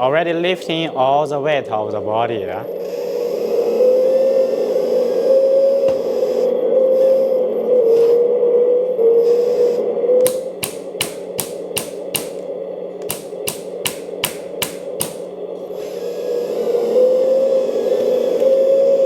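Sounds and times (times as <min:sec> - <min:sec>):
hydraulic pump whining: 0:02.6 - 0:19.0
hydraulic hammer clicking: 0:10.2 - 0:15.4.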